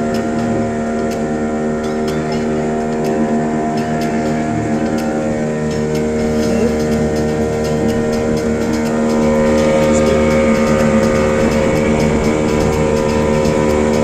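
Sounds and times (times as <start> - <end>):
motorboat engine running: 0.0 - 14.0.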